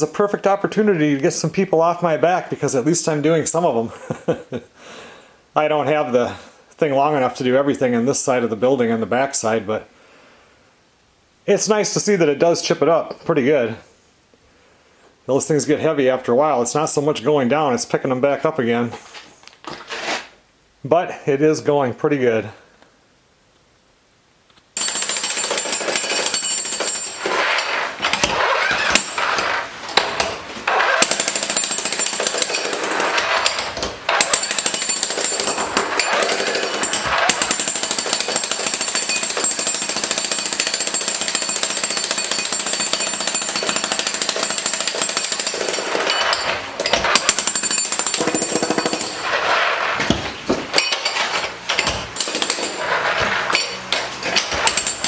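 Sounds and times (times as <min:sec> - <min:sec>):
jackhammer breaking concrete: 0:24.8 - 0:55.0.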